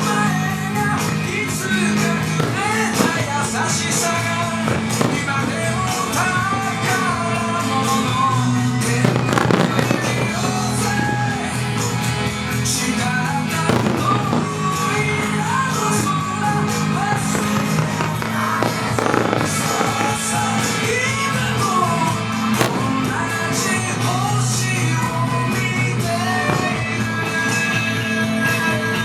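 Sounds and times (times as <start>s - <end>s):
fireworks bursting: 0.0s - 29.0s
rock song with singing: 0.0s - 29.0s.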